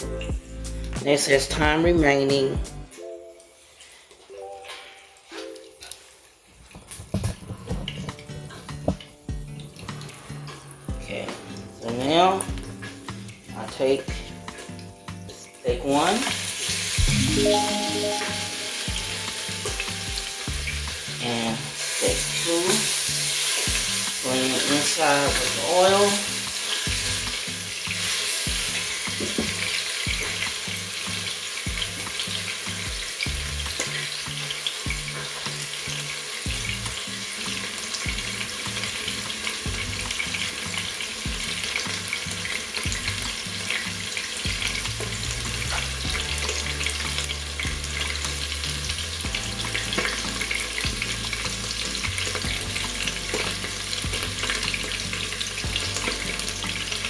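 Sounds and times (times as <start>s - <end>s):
steak sizzling in hot oil: 12.4s - 57.0s.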